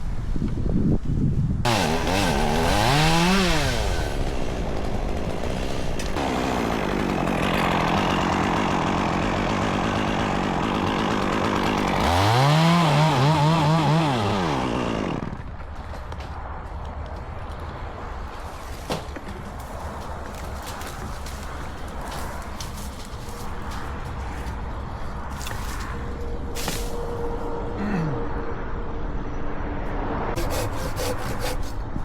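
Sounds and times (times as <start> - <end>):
chainsaw engine revving: 1.7 - 15.4, 30.4 - 31.8.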